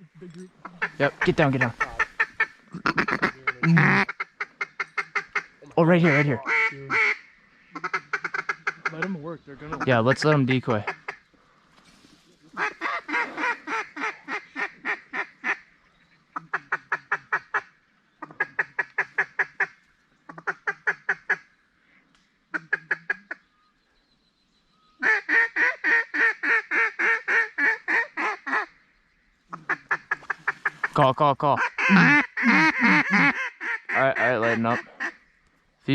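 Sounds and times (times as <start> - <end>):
duck quacking rapidly: 0.6 - 11.2, 12.6 - 15.6, 29.5 - 35.2.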